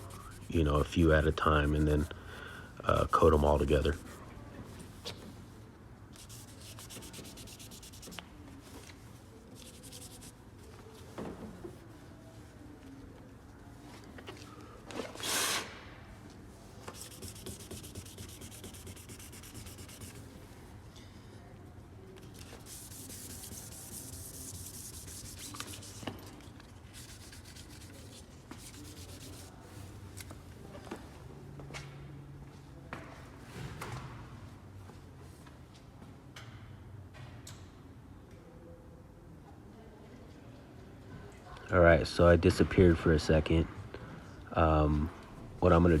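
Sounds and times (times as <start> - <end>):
sandpaper scuffing plastic: 6.2 - 8.2, 16.9 - 20.2, 22.4 - 26.1, 26.9 - 29.5.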